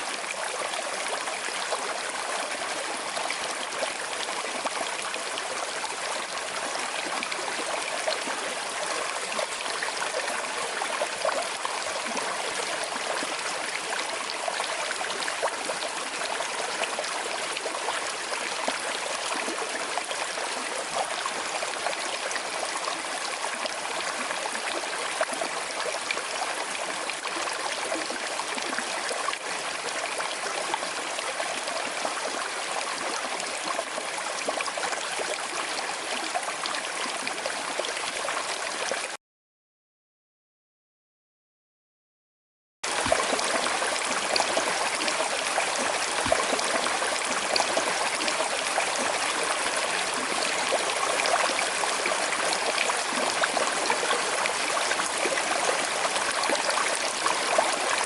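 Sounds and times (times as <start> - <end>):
river flowing over stones: 42.9 - 58.0.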